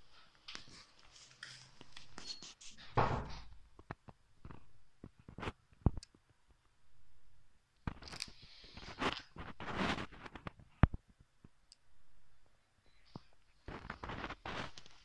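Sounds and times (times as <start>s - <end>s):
scraping and rustling: 7.9s - 10.8s, 13.6s - 15.0s.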